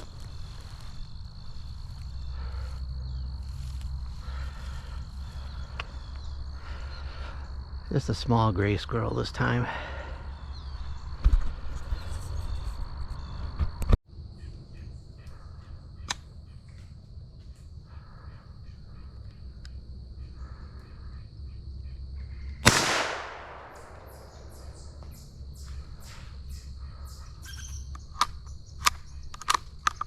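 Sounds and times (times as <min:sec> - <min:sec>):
crows cawing: 0:00.0 - 0:07.5
rifle shot: 0:22.6 - 0:24.6.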